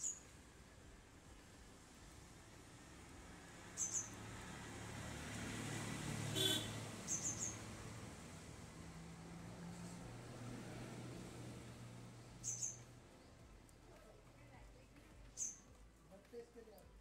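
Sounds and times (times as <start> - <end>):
small bird chirping: 0.0 - 0.4, 3.7 - 4.3, 7.0 - 7.7, 12.4 - 13.8, 15.3 - 15.7.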